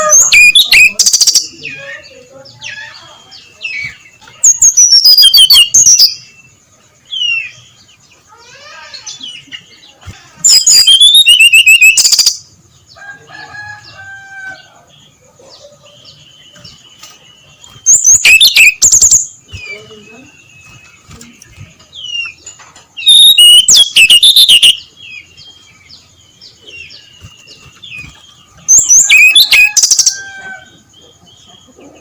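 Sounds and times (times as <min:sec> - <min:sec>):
bird singing whistled phrases: 0:00.0 - 0:01.5, 0:03.7 - 0:06.3, 0:10.4 - 0:12.4, 0:17.6 - 0:21.6, 0:23.0 - 0:24.9, 0:28.7 - 0:30.2
soft bird chirps: 0:00.0 - 0:32.0.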